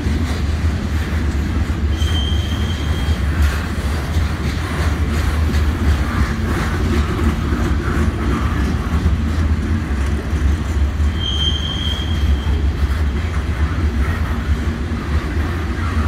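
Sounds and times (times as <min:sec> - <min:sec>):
freight train wheels rumbling: 0:00.0 - 0:16.0
steel wheel squeal: 0:01.9 - 0:03.4, 0:11.0 - 0:12.7.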